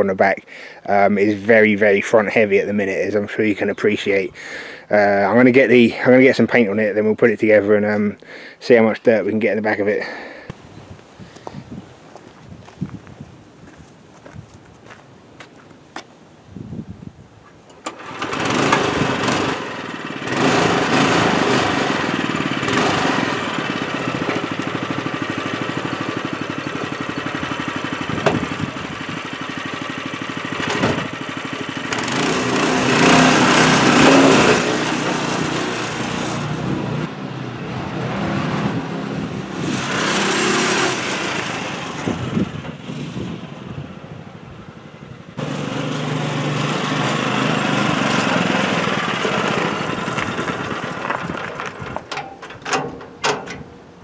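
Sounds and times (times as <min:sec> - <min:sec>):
small engine running: 0:17.8 - 0:37.1, 0:38.3 - 0:43.2, 0:45.4 - 0:52.0.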